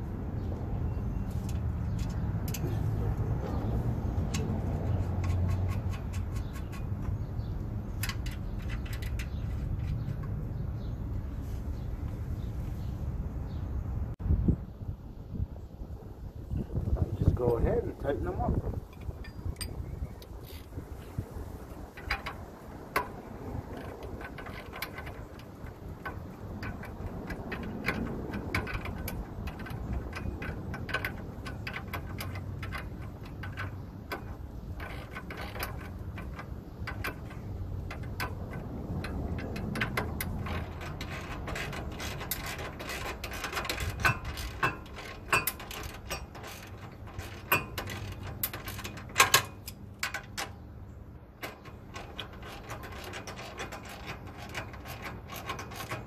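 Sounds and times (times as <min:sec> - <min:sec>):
metal knocks: 0:21.9 - 0:56.0.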